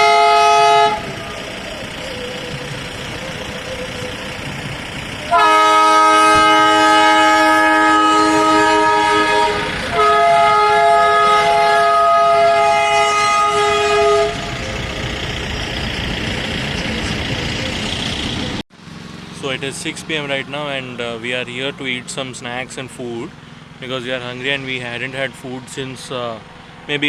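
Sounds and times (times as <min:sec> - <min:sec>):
multi-tone air horn blasts: 0:00.0 - 0:15.0
traffic noise: 0:00.0 - 0:27.0.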